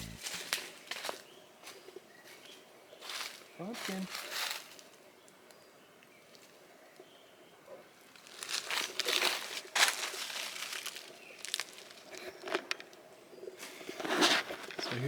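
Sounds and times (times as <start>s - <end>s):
crinkling crackling rustle: 8.2s - 12.9s.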